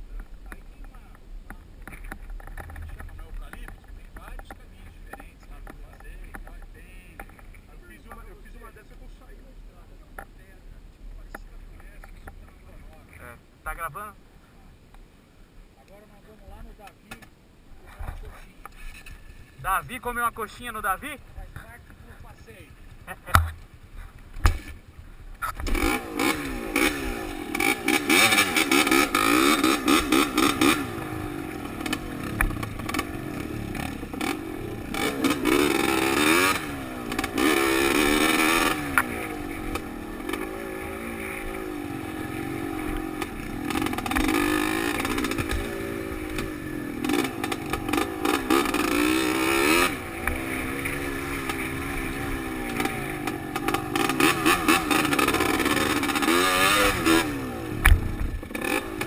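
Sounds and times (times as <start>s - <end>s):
dirt bike engine revving: 25.4s - 59.0s.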